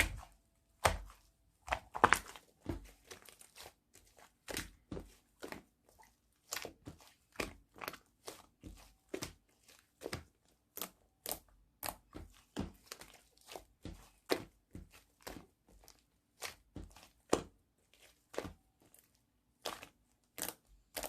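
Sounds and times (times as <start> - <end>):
slime squished crunchy crackle: 0.0 - 4.9, 18.0 - 21.0.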